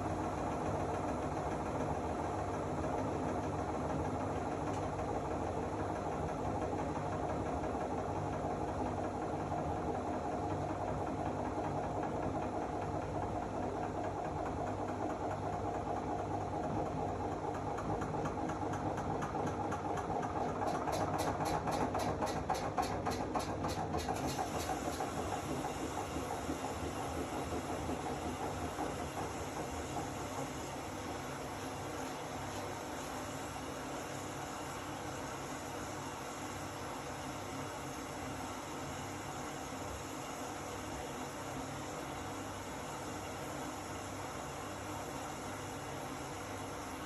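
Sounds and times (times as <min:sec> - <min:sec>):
washing machine motor hum: 0:00.0 - 0:47.0.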